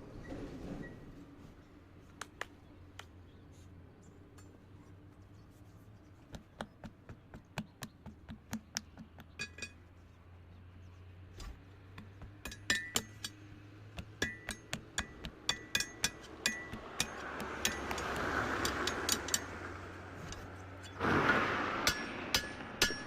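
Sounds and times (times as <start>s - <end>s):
metal tools tapping metal: 8.5s - 9.8s, 11.9s - 21.0s, 21.8s - 23.0s.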